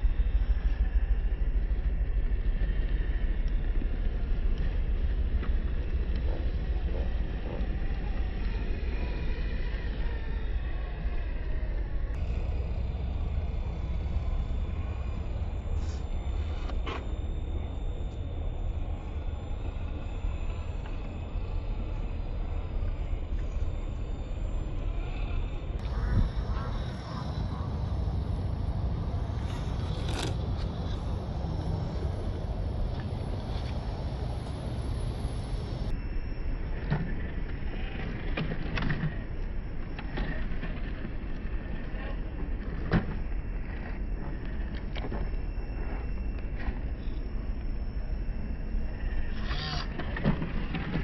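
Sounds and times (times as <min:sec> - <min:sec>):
faint high whine: 0:00.0 - 0:51.0
small electric motor and gears: 0:02.6 - 0:51.0
wind buffeting microphone: 0:12.2 - 0:35.9.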